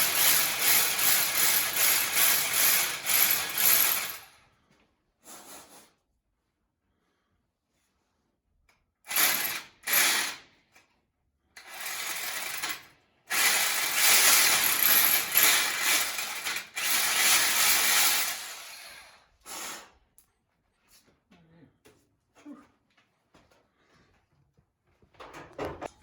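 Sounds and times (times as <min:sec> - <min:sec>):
drill boring into concrete: 0:00.0 - 0:04.3, 0:09.1 - 0:10.4, 0:11.6 - 0:19.9.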